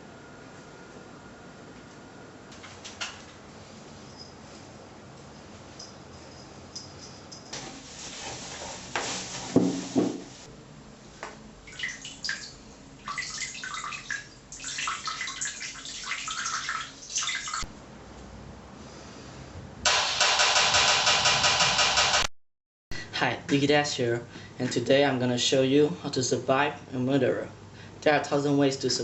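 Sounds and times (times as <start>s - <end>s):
knock: 9.6s - 10.3s
water running and splashing: 11.7s - 17.7s.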